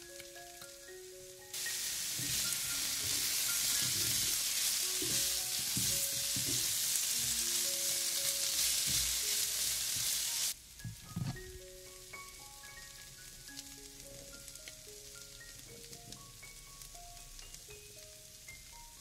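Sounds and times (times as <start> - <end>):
vegetables sizzling in oil: 0.0 - 19.0
spatula knocking against pan: 2.2 - 6.8.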